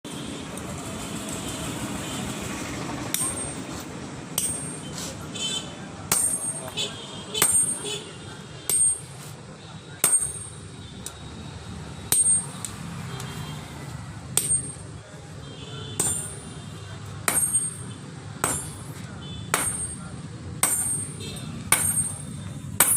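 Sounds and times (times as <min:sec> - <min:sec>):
hammer striking steel on anvil: 0:03.1 - 0:03.8, 0:04.4 - 0:05.0, 0:06.1 - 0:08.0, 0:08.7 - 0:09.2, 0:10.0 - 0:10.7, 0:12.1 - 0:12.7, 0:14.4 - 0:15.0, 0:16.0 - 0:16.6, 0:17.2 - 0:22.9.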